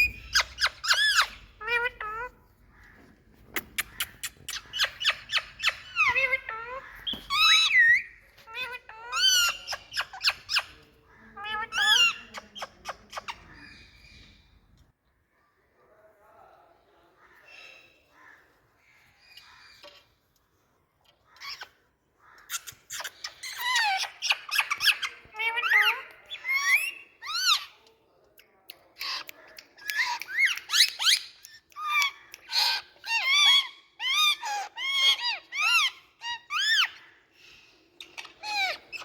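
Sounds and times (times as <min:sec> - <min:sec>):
parakeet squawking: 0:00.0 - 0:02.4.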